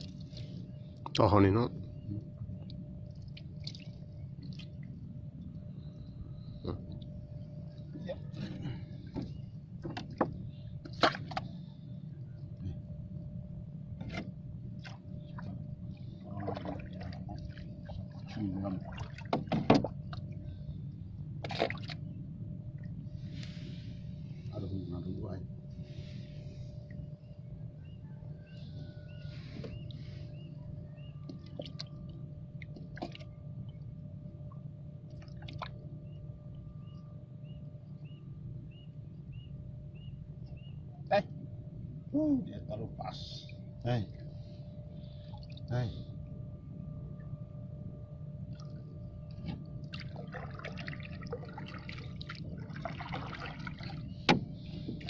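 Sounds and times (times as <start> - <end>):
faint steady tone: 0.0 - 55.0
steady low hum: 0.0 - 55.0
faint high chirp: 26.9 - 31.9, 36.0 - 41.0.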